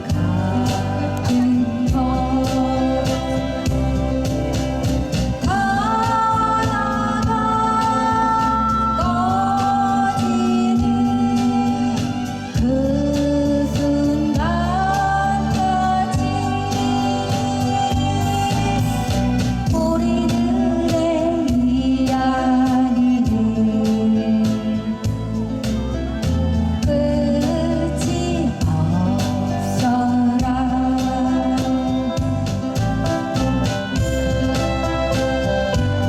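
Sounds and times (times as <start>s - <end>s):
person singing slow folk song: 0.0s - 36.0s
steady accompaniment: 0.0s - 36.0s.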